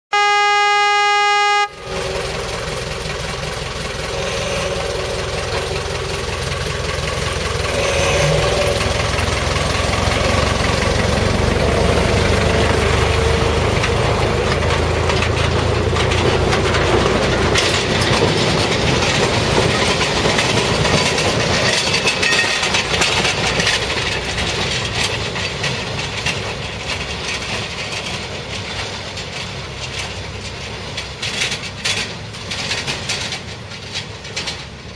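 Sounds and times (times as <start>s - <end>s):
locomotive horn blast: 0.1s - 2.5s
train rumbling clatter on track: 1.7s - 34.9s.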